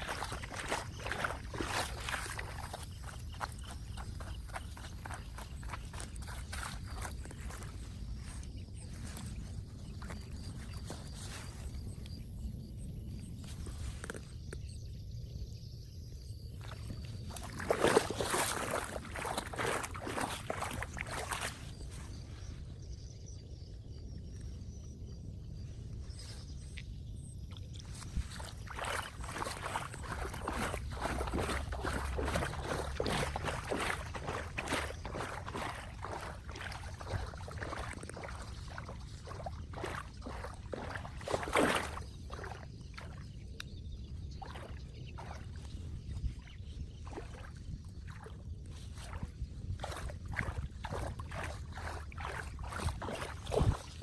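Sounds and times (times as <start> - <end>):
water splashing: 0.0 - 8.4, 17.2 - 21.7, 28.0 - 43.3, 49.2 - 54.0.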